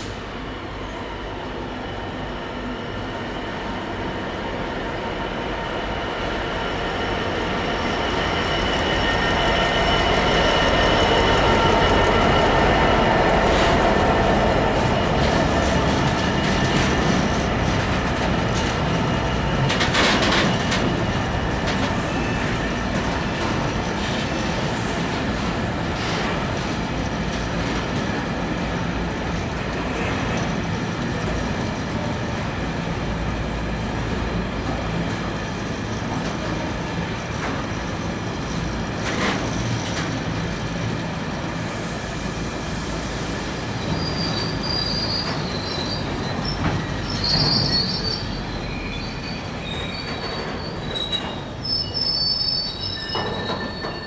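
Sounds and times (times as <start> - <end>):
train wheel squeal: 0.0 - 28.3, 41.6 - 54.0
train clanks: 7.2 - 54.0
freight wagons rolling on rails: 14.7 - 28.0.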